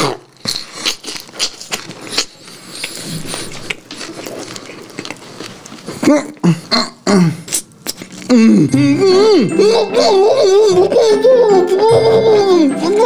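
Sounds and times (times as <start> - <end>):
wet chewing clicks and smacks: 0.0 - 6.4, 7.4 - 8.3.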